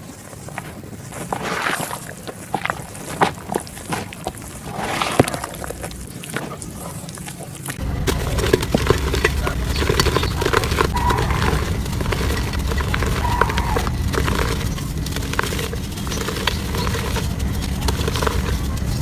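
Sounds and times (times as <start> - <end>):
dirt crumbling and crunching: 0.0 - 19.0
steady low rumble: 2.0 - 19.0.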